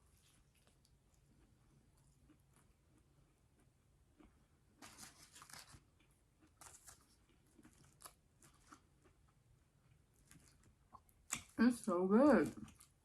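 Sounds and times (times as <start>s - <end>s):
chewing food: 0.0s - 13.0s
crackly crunches: 3.6s - 9.4s, 10.1s - 11.6s.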